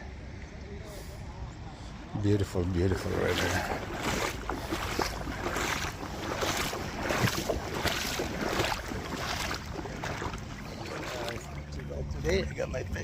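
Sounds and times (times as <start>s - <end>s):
river rushing: 2.9s - 11.7s.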